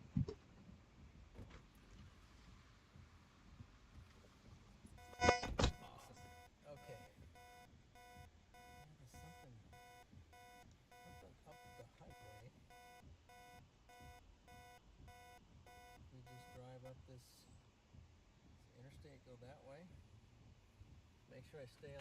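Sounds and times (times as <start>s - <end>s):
electronic alarm beeping: 5.0s - 17.0s.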